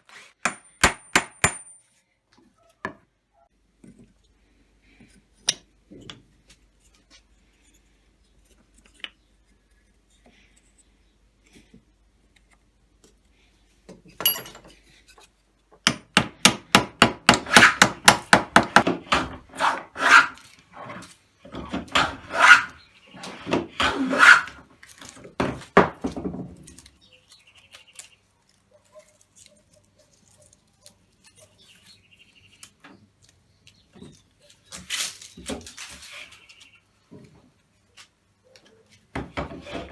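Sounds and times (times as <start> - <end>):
hand plane scraping a board: 17.2 - 24.7, 39.2 - 39.9.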